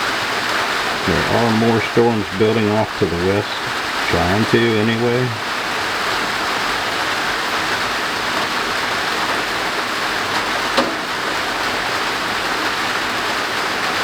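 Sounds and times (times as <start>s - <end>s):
heavy rain on a roof: 0.0s - 14.0s.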